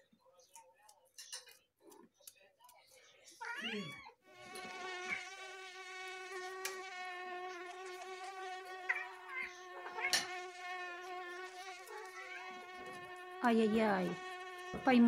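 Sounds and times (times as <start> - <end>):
mosquito whine: 4.3 - 15.0.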